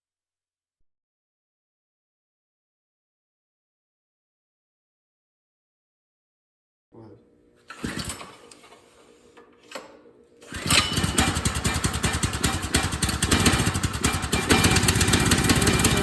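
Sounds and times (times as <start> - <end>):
lawn tractor engine starting: 7.7 - 8.9, 9.7 - 16.0.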